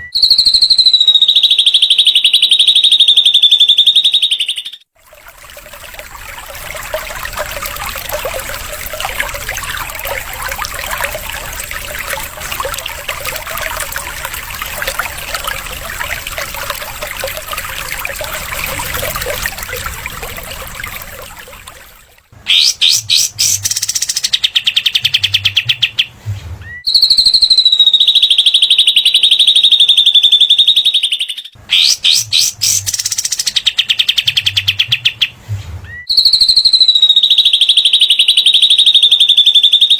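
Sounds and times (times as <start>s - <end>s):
bird long high whistle: 0.0s - 4.8s
bird rapid ticking trills: 0.2s - 26.1s, 31.7s - 35.3s.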